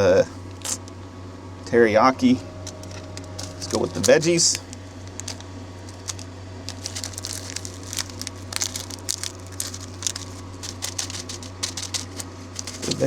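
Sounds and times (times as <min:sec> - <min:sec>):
plastic packet crinkling: 0:02.9 - 0:13.0
dried vegetables ticking into bowl: 0:06.0 - 0:13.0.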